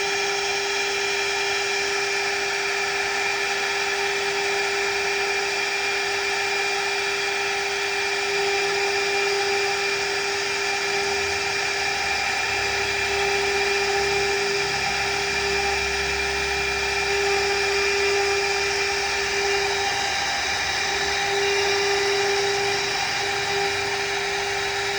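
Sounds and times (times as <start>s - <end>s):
router spindle whining: 0.0s - 24.9s
grinding hiss: 11.0s - 24.9s.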